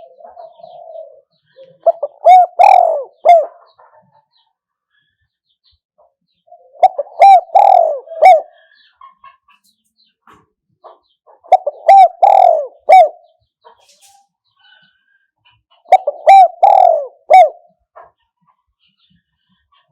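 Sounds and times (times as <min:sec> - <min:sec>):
dove cooing: 0:00.0 - 0:04.4, 0:06.5 - 0:08.9, 0:11.3 - 0:13.3, 0:15.8 - 0:17.9.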